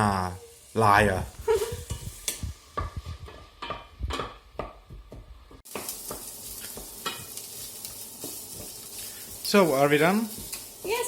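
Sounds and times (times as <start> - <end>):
onion frying in hot oil: 0.0 - 11.0
utensil scraping pot: 1.4 - 4.4.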